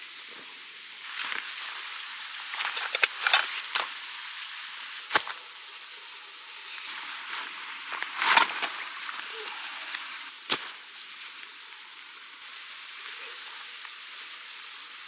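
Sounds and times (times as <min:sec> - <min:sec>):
steady hiss: 0:00.0 - 0:15.0
crackles: 0:00.3 - 0:15.0.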